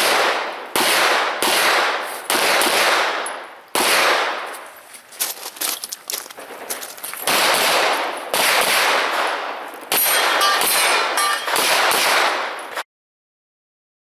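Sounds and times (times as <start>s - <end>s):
rapid gunfire: 0.0s - 3.2s, 3.8s - 4.5s, 7.3s - 12.6s
metallic clanging: 10.0s - 11.6s.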